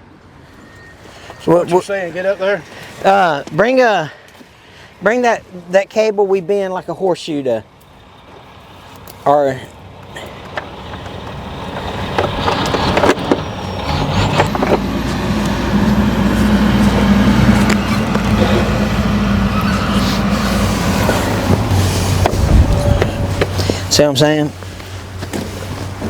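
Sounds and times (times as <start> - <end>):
vehicle engine running: 10.0 - 26.0.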